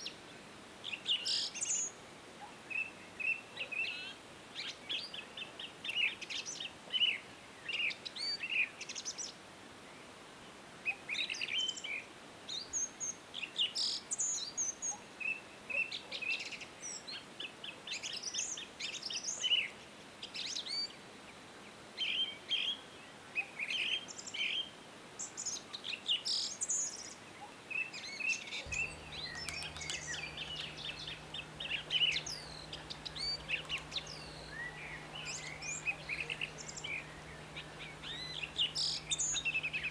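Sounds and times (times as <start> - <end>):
small birds chirping and singing: 28.7 - 39.9.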